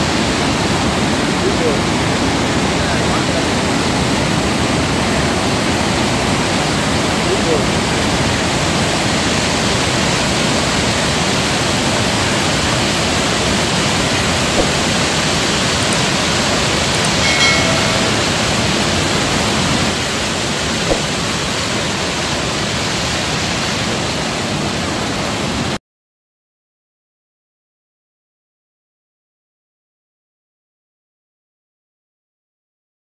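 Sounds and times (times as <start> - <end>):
water roaring over a weir: 0.0 - 25.8.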